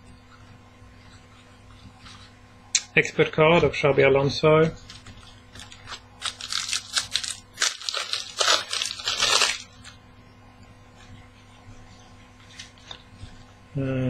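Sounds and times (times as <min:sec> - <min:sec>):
foil wrapper crinkling: 0:04.8 - 0:10.0.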